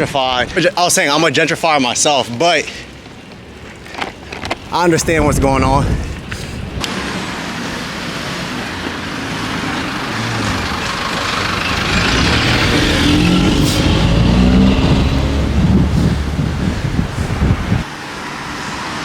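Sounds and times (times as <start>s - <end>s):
street traffic: 0.0s - 19.0s
motor vehicle passing close: 6.2s - 17.8s.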